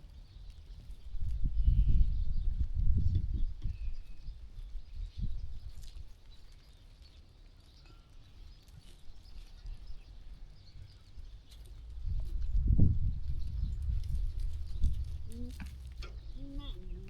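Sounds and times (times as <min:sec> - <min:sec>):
low uneven rumble: 0:09.0 - 0:17.0.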